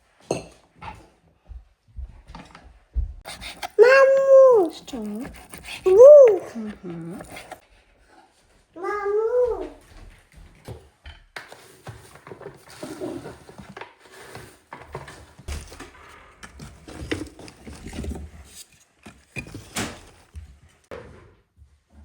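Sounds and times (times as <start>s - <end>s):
light knocks and clatter: 0.2s - 3.3s.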